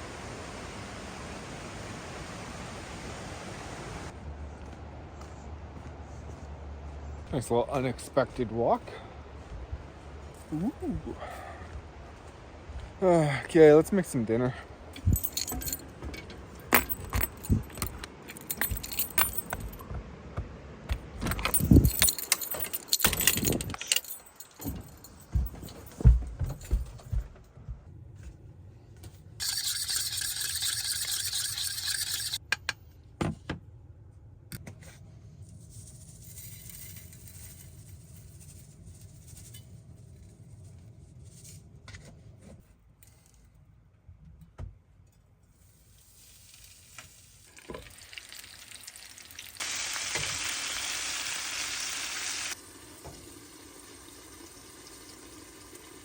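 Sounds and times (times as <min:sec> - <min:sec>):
steady hiss: 0:49.6 - 0:56.0.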